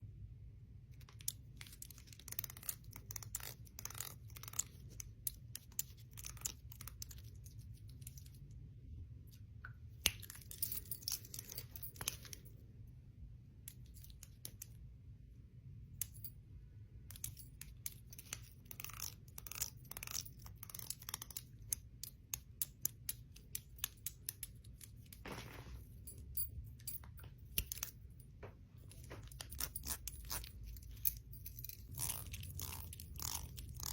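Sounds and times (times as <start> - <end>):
low steady hum: 0.0 - 33.9
bangles and rings clinking: 10.1 - 12.6, 23.1 - 33.9.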